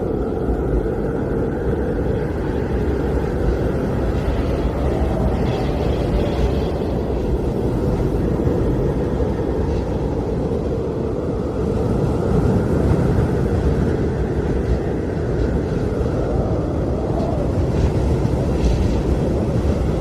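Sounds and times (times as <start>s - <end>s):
blizzard wind blowing hard: 0.0s - 20.0s.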